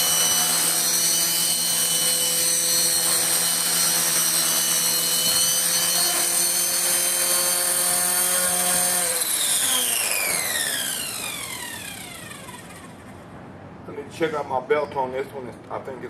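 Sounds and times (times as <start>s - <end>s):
rc helicopter rotor whine: 0.0s - 13.2s.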